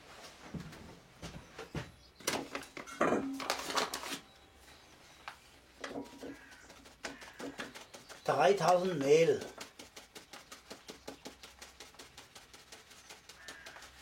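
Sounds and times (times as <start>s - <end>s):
rustling: 2.4s - 14.0s
handling knocks and clicks: 5.2s - 11.4s.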